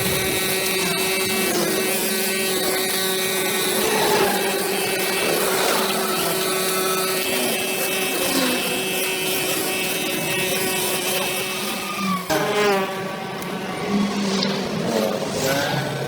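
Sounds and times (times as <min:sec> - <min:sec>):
brush cutter engine running: 0:00.0 - 0:12.4.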